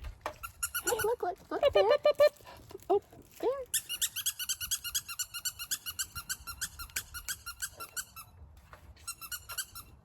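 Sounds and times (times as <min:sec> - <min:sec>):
squeaky toy squeaking: 0:00.4 - 0:01.2, 0:03.7 - 0:08.4, 0:09.0 - 0:10.0.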